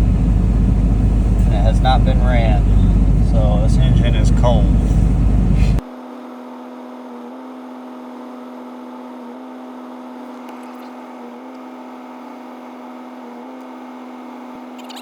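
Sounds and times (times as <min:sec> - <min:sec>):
diesel engine idling: 0:00.0 - 0:05.8
heater blower running: 0:00.0 - 0:05.8.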